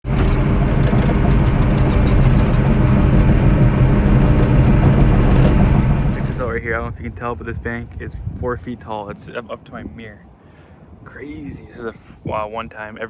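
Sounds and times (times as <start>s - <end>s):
truck engine droning: 0.0s - 8.0s.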